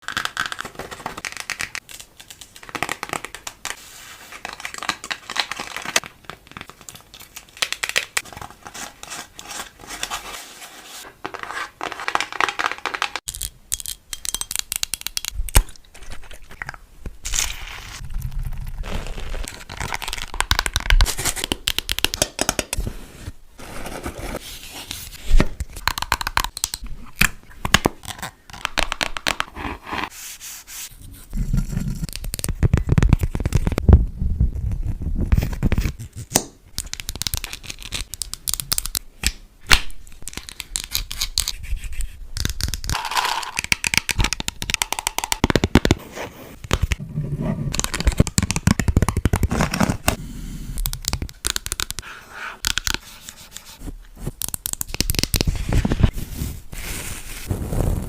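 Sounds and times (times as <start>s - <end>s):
crinkling and tearing: 17.2s - 22.8s, 47.7s - 50.2s.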